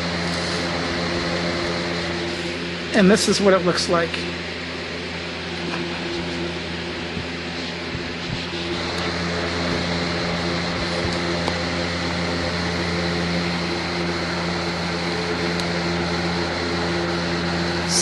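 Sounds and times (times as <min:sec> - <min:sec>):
electric fan air rush: 0:00.0 - 0:18.0
fan motor hum: 0:00.0 - 0:18.0.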